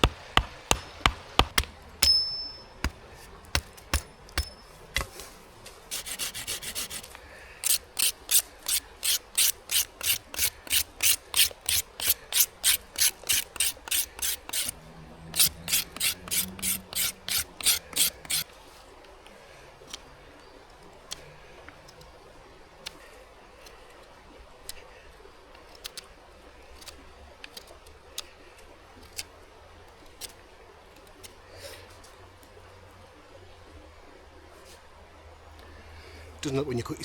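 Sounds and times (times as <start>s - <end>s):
hand saw cutting wood: 0.0s - 2.2s, 2.8s - 18.8s.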